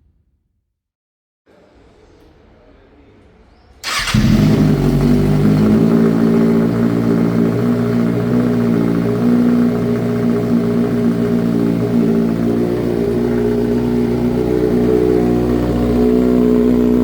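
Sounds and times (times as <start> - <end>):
motorcycle engine running loud: 3.9 - 17.0.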